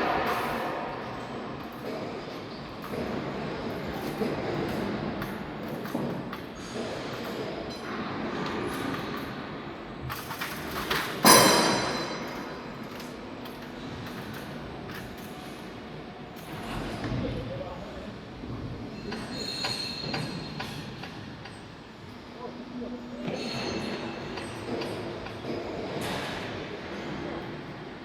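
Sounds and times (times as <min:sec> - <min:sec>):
loud ringing clang: 0:11.2 - 0:12.8.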